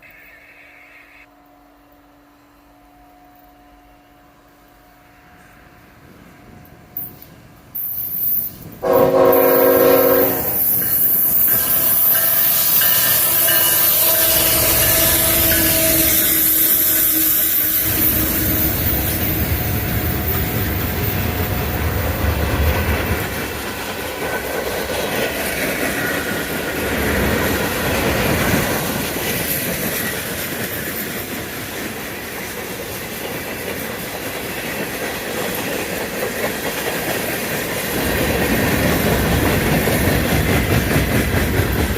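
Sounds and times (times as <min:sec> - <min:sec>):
locomotive horn: 0:08.8 - 0:10.8, 0:13.1 - 0:19.6
freight cars clattering on rails: 0:17.8 - 0:41.9.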